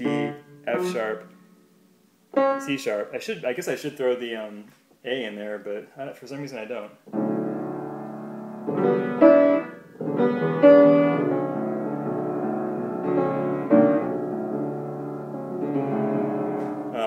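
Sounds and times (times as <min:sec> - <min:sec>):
keyboard playing slow chords: 0:00.0 - 0:01.7, 0:07.2 - 0:17.0.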